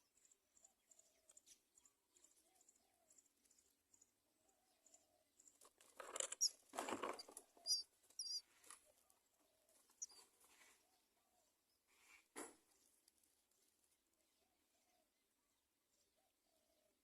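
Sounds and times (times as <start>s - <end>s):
rustling and fluttering: 5.6s - 9.0s
high chick chirps: 6.2s - 8.4s, 10.0s - 10.2s.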